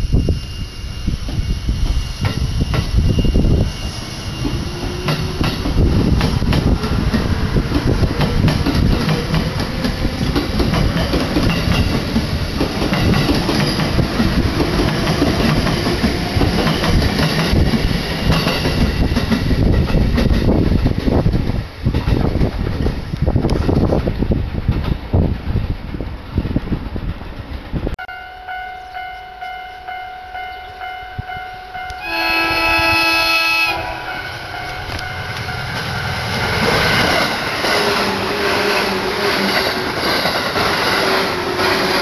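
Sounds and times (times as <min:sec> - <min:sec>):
electric train rushing past: 0:00.0 - 0:42.0
wheels clacking over rail joints: 0:04.4 - 0:25.3, 0:34.6 - 0:42.0.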